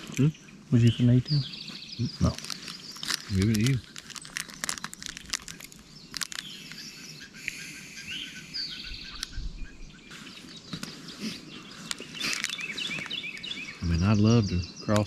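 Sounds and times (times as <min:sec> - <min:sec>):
low outdoor background noise: 0:00.0 - 0:15.0
songbirds chirping and trilling: 0:00.0 - 0:15.0
sharp clicks: 0:09.1 - 0:09.4.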